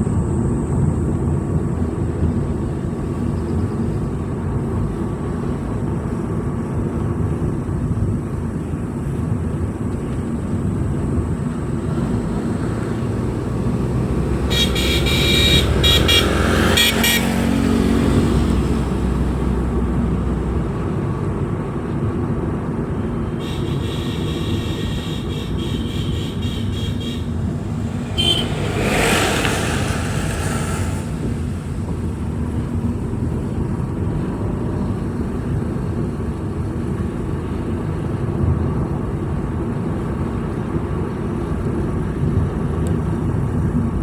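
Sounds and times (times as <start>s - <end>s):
vehicle driving on road: 0.0s - 44.0s
vehicle passing by: 11.2s - 20.9s, 23.4s - 33.7s
horn honking in pulses: 12.5s - 18.7s, 23.4s - 32.2s
faint horn-like tone: 14.4s - 17.5s, 23.4s - 32.0s.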